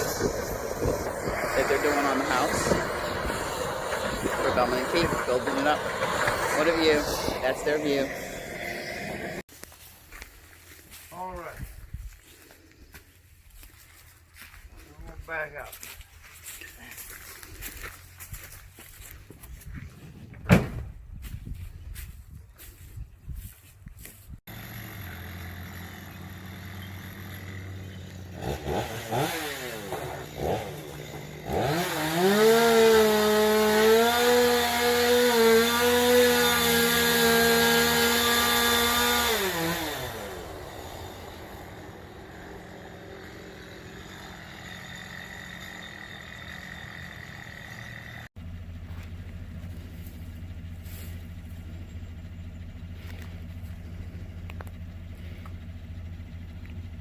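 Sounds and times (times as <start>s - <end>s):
vehicle engine revving: 0.0s - 9.4s, 24.5s - 57.0s.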